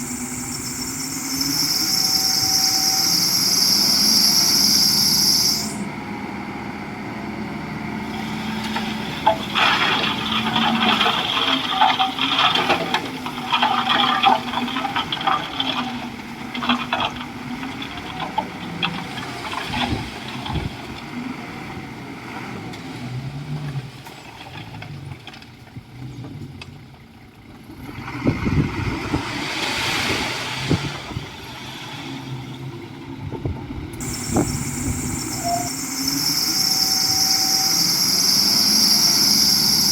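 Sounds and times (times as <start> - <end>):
bulldozer diesel engine working: 0.0 - 39.9
short clanks and cracks: 8.6 - 21.0.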